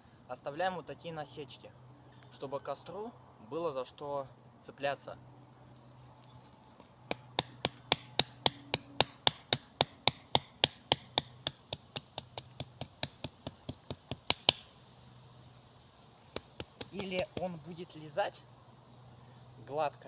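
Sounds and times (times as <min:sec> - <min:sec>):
blade chopping wood: 0:07.1 - 0:14.7, 0:16.3 - 0:17.6.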